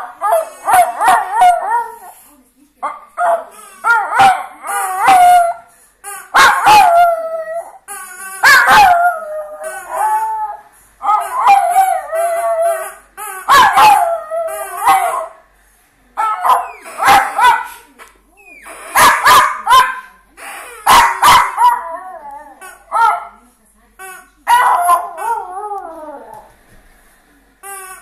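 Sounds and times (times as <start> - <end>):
dog howling and whining: 0.0 - 2.1, 3.8 - 5.6, 6.3 - 7.8, 8.4 - 15.4, 20.8 - 23.2, 24.5 - 26.5.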